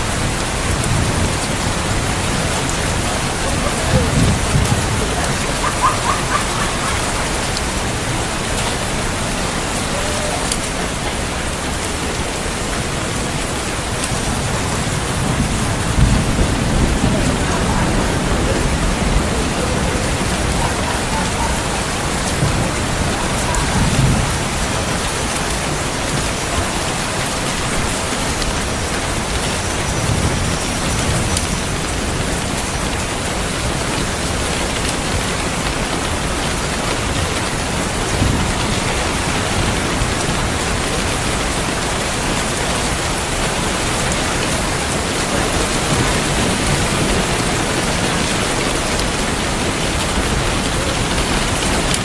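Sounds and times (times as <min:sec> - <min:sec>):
distant thunder rumbles: 0:00.0 - 0:32.4
heavy rain falling: 0:00.0 - 0:52.0.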